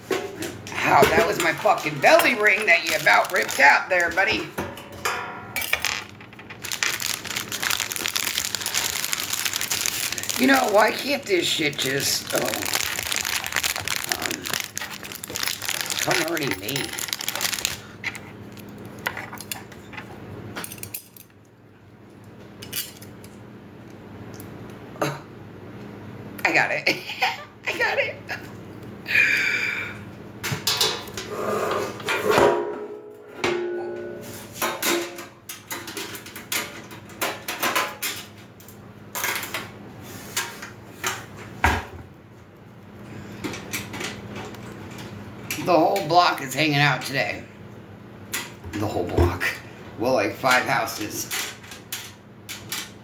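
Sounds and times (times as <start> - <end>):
metal parts clinking and knocking: 1.2 - 4.2, 5.6 - 10.9, 11.6 - 17.8.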